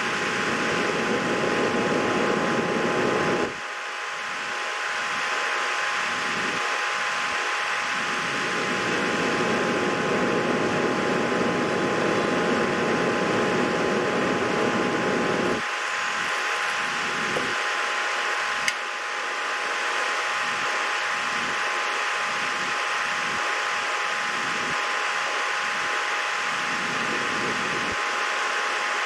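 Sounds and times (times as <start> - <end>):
fan-like whirring: 0.0 - 29.0
sharp click: 18.6 - 18.8.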